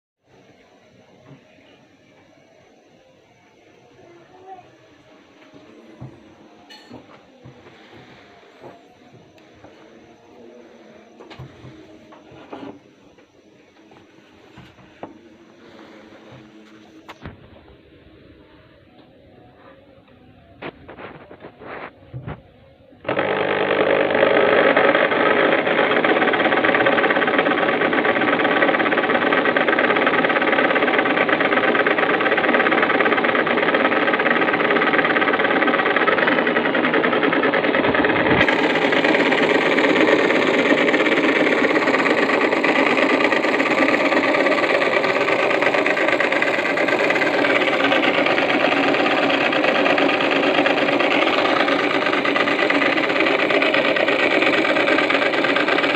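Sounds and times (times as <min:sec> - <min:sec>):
electric drill driving a grater: 0:23.0 - 0:55.9.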